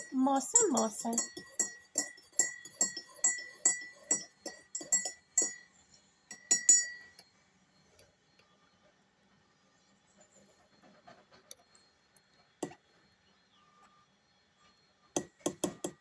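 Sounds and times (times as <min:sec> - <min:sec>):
small bell jingling: 0:00.0 - 0:05.6.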